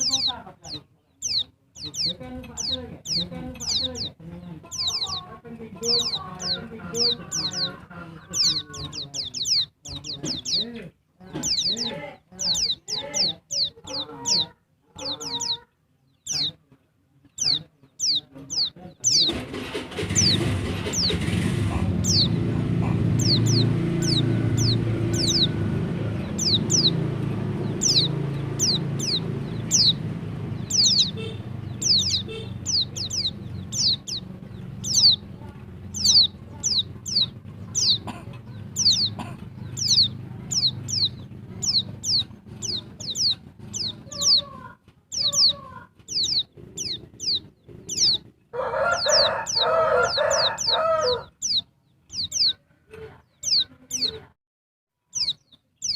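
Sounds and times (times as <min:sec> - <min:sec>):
lower-pitched bird call: 0:00.0 - 0:16.6, 0:17.4 - 0:52.6, 0:55.1 - 0:55.9
low background rumble: 0:18.0 - 0:52.6.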